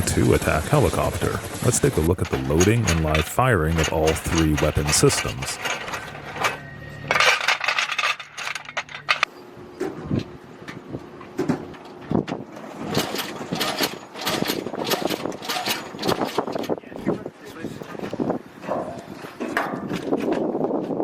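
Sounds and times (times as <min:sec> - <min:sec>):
steady machine hum: 0:00.0 - 0:06.2
metallic clicks and clanks: 0:00.4 - 0:09.3.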